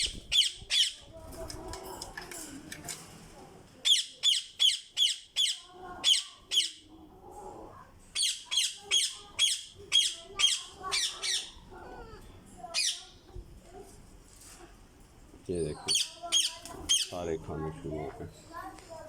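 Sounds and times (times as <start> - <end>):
parrots squawking: 0.0 - 1.0, 3.8 - 7.0, 8.2 - 13.2, 15.8 - 17.2.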